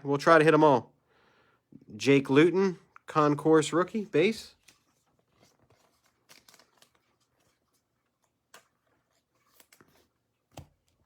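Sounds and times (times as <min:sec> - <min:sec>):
trading cards being handled: 0:03.8 - 0:11.0.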